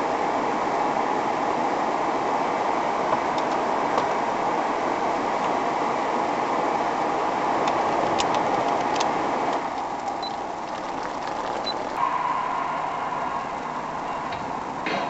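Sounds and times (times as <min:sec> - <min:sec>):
steady tone with low hum: 0:09.1 - 0:14.9.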